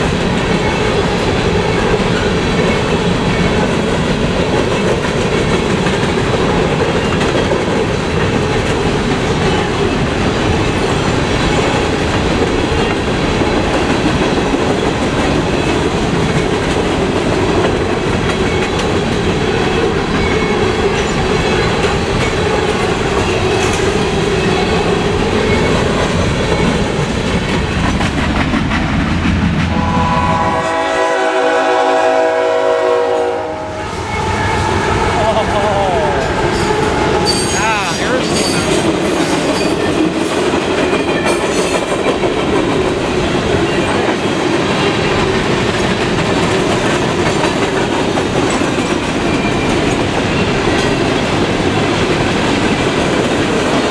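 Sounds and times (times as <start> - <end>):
locomotive air horn: 29.7 - 35.2
freight train wheels clattering: 36.2 - 53.9.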